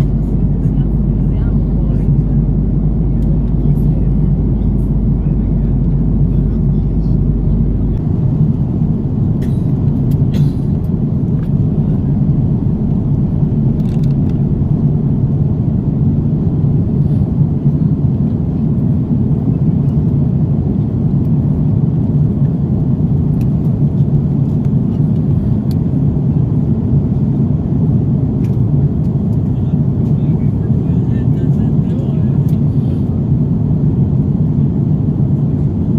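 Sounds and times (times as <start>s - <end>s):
airplane cabin rumble: 0.0s - 35.9s.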